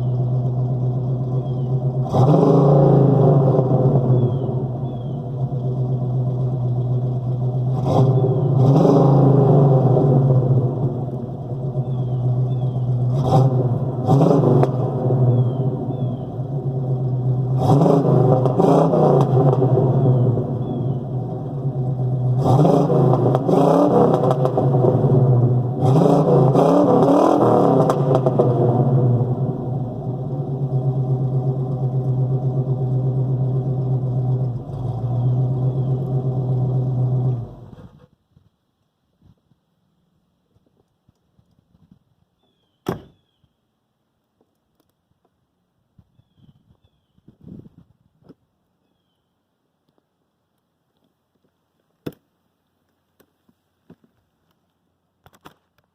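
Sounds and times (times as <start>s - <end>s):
car engine idling and revving: 0.0s - 38.2s.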